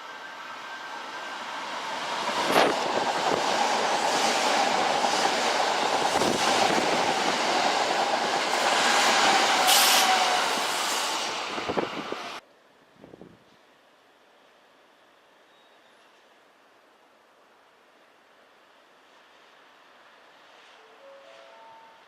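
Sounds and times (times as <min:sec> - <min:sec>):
electric train running past: 0:00.0 - 0:12.4.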